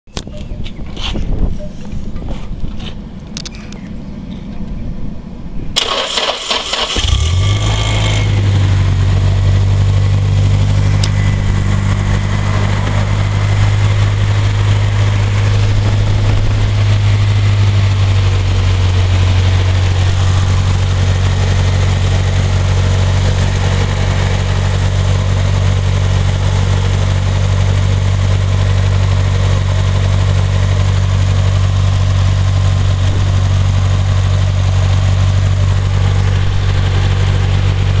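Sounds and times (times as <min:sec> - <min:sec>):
car engine idling: 0:01.8 - 0:38.0
engine starter cranking: 0:05.8 - 0:08.0.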